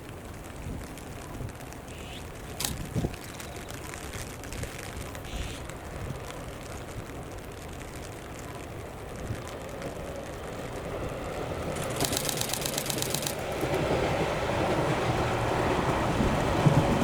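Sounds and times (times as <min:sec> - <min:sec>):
train running noise: 0:00.0 - 0:17.0
fast high rattle: 0:11.8 - 0:13.5.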